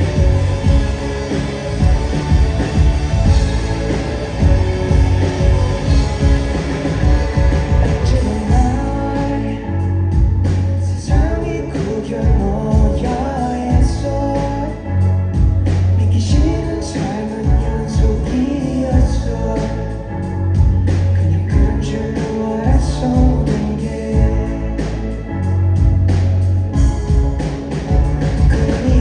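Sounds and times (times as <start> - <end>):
steady drum beat: 0.0 - 9.5, 25.8 - 29.0
person singing: 0.0 - 15.0, 28.4 - 29.0
bass and guitar: 0.0 - 29.0.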